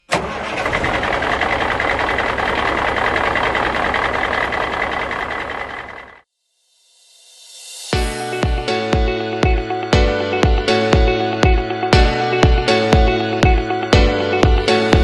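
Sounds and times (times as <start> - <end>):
tractor diesel engine running: 0.0 - 6.2.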